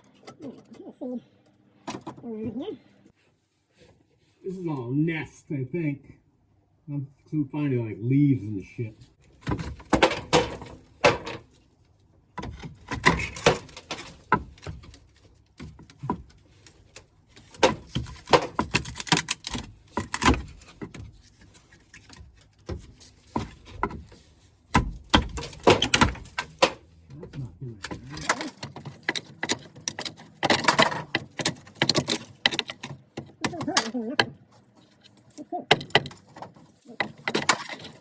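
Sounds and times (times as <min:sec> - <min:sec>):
debris knocking and clattering: 0:09.2 - 0:11.6, 0:12.3 - 0:38.0.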